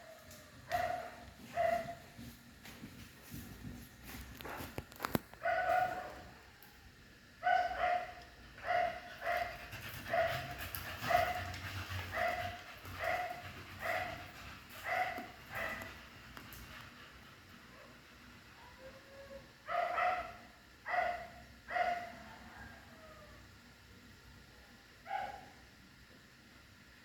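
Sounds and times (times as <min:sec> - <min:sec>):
dog barking: 0:00.7 - 0:02.0, 0:05.4 - 0:06.3, 0:07.4 - 0:10.5, 0:11.1 - 0:11.5, 0:12.1 - 0:14.2, 0:14.8 - 0:15.9, 0:19.7 - 0:22.8, 0:25.0 - 0:25.6.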